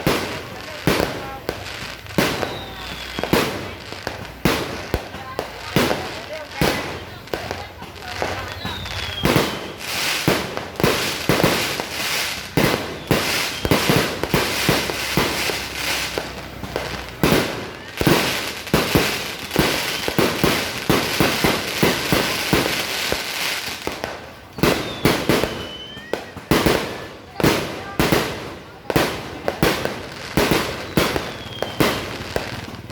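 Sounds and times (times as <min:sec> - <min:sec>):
fireworks bangs and crackling: 0:00.0 - 0:32.9
firework whistle: 0:02.2 - 0:04.2, 0:08.0 - 0:27.2, 0:30.4 - 0:32.8.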